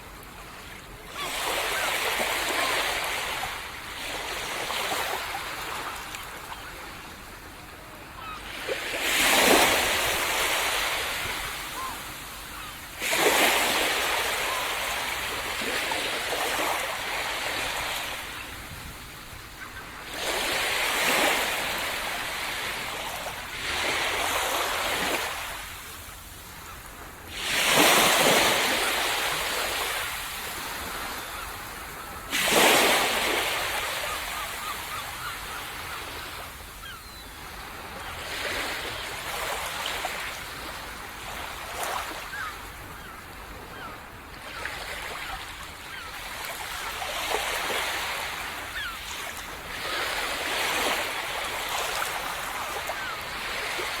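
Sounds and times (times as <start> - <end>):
small waves breaking on beach: 0.0 - 54.0.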